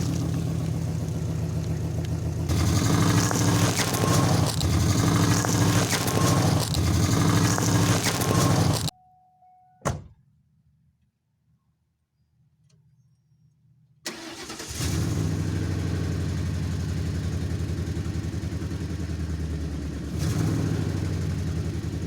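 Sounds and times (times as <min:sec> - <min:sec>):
heavy truck engine running: 0:00.0 - 0:08.9.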